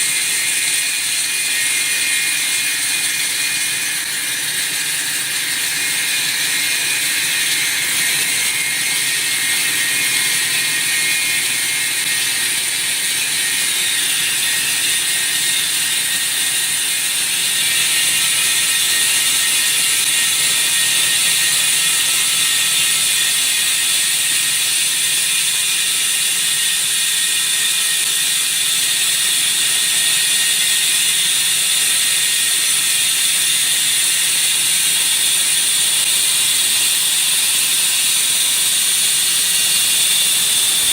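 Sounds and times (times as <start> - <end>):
saw grinding through concrete: 0.0 - 40.9.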